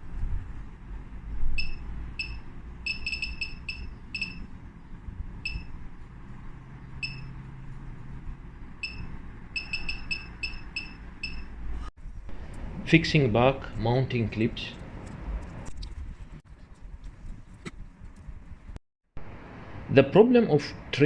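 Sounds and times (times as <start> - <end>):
low steady rumble: 0.0 - 21.0
high-pitched key beeps: 1.6 - 4.6, 5.4 - 5.8, 7.0 - 7.4, 8.8 - 11.9.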